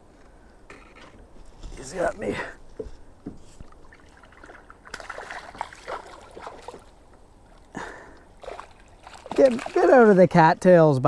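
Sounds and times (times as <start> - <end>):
water splashes and trickles: 3.4 - 11.0
loud fish splash: 4.9 - 6.8.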